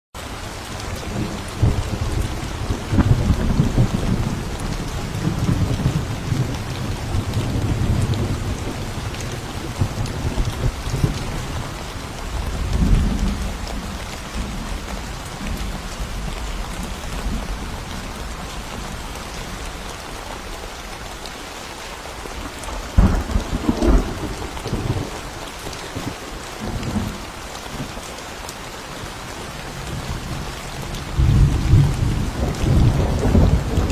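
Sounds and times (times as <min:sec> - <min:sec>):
heavy rain: 0:00.2 - 0:33.9
rolling thunder rumbles: 0:00.5 - 0:19.8, 0:22.4 - 0:28.0, 0:29.6 - 0:33.9
sharp thunder cracks: 0:01.1 - 0:11.7, 0:22.7 - 0:25.3.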